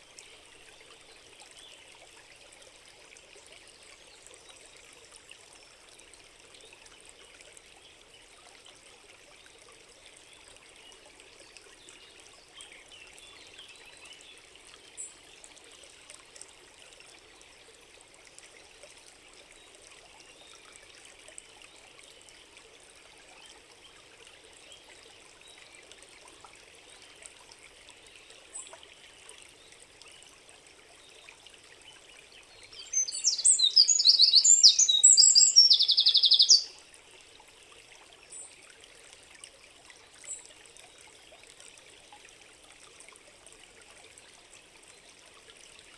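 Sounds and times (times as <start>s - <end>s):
stream trickling: 0.0s - 45.9s
songbird singing trills: 32.6s - 36.8s
faint high chirp: 32.7s - 36.8s.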